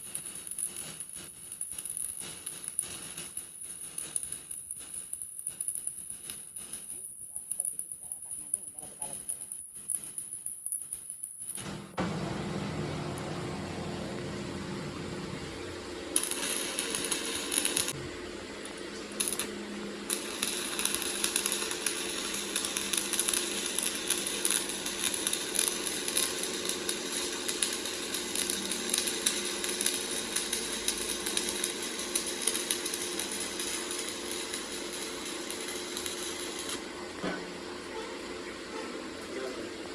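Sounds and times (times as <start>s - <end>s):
power tool working metal: 15.8s - 18.1s, 18.7s - 38.2s.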